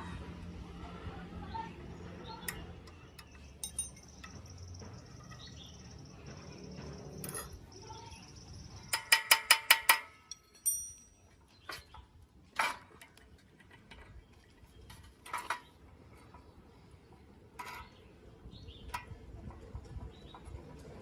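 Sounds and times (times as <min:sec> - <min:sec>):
metal tools clinking and knocking: 0:02.5 - 0:04.5, 0:07.2 - 0:07.8, 0:08.9 - 0:12.0, 0:14.8 - 0:15.8, 0:17.6 - 0:18.0
ringing metal clink: 0:03.2 - 0:04.3, 0:07.2 - 0:07.6, 0:08.9 - 0:11.4.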